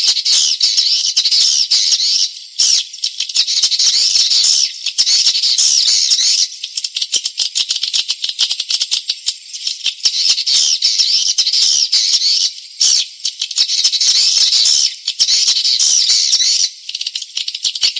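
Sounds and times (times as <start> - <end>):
high twittering bird chirps: 0.0 - 17.9.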